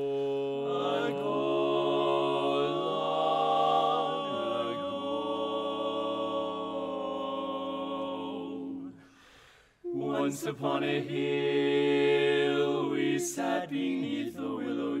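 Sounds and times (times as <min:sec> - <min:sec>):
vocal group singing in harmony: 0:00.0 - 0:15.0.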